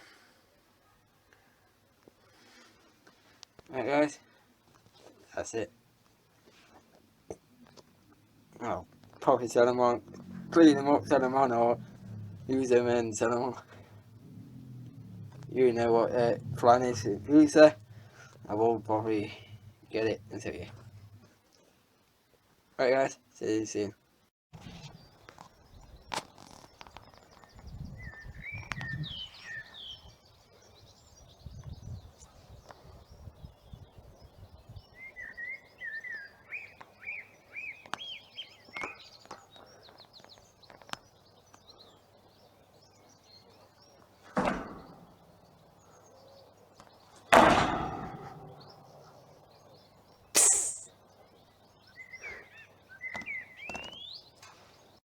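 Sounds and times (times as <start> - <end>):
small birds chirping: 2.2 - 21.7, 24.6 - 55.0
loud rushes of noise: 10.0 - 21.2.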